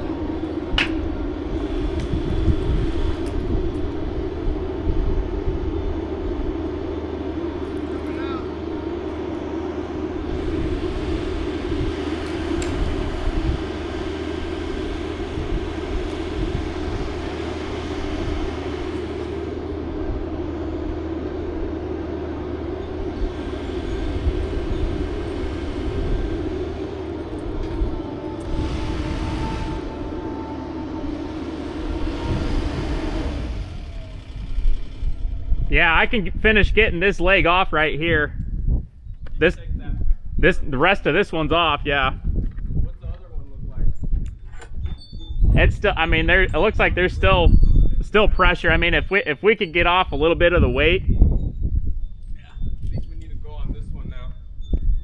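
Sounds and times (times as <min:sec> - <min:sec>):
engine droning: 0:00.0 - 0:54.8
sharp high squeak: 0:43.9 - 0:45.7, 0:47.2 - 0:55.0.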